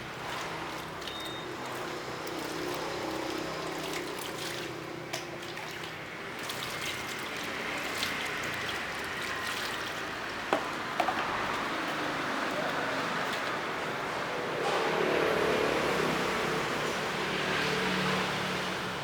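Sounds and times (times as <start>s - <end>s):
water trickling: 0.0s - 14.0s.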